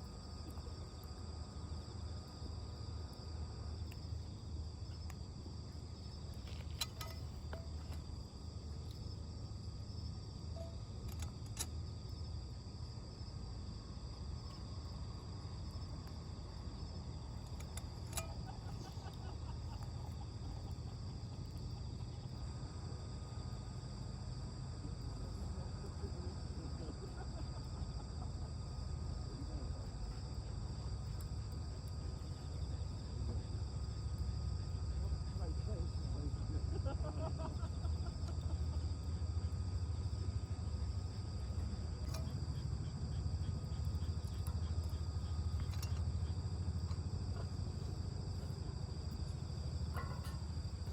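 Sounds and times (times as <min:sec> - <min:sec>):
crickets and insects trilling: 0:00.0 - 0:50.9.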